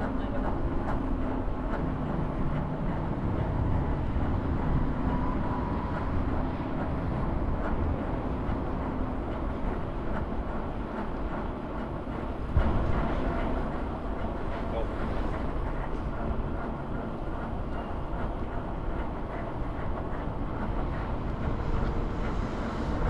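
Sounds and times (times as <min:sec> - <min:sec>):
scooter road and wind rumble: 0:00.0 - 0:14.4.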